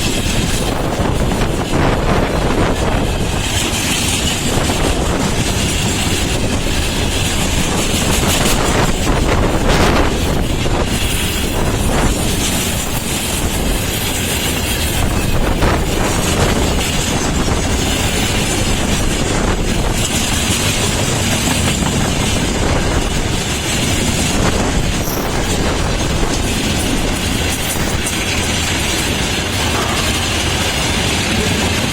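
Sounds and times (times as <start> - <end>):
freight train passing: 0.0 - 31.9.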